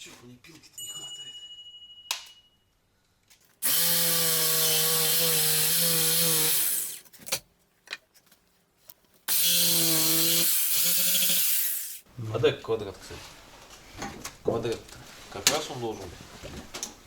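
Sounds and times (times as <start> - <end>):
electric saw cutting: 3.6 - 7.0, 9.3 - 12.0.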